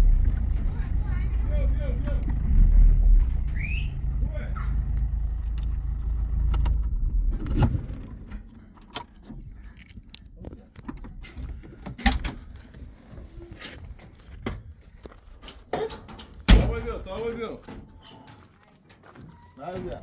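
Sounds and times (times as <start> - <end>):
vehicle engine rumble: 0.0 - 18.0
keys jingling: 8.9 - 10.4.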